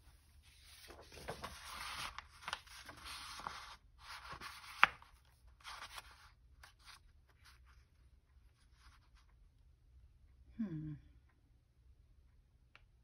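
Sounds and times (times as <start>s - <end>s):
paper rustling and scraping: 0.1s - 7.6s.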